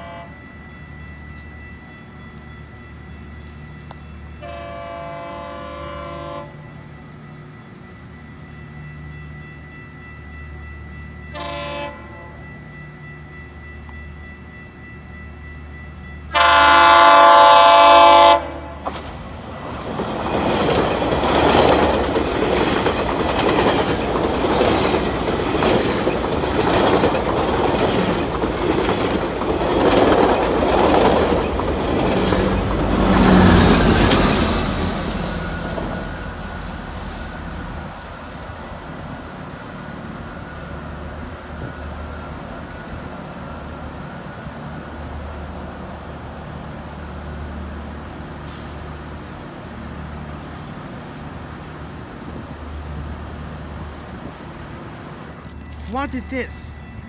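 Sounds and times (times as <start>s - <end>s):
loud train horn: 0.0s - 0.4s, 4.4s - 6.7s, 11.3s - 12.5s, 16.3s - 18.8s
train wheels clicking over joints: 18.7s - 34.9s.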